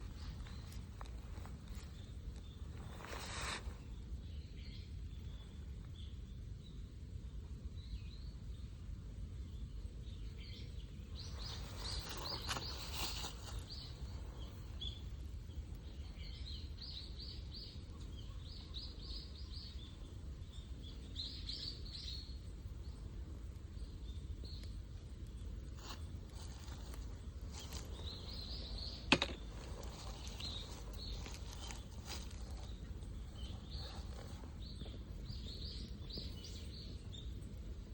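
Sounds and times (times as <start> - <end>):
rustling: 0.0 - 3.8, 11.4 - 14.7, 25.7 - 35.0
low background rumble: 0.0 - 37.9
small birds chirping: 0.0 - 37.9.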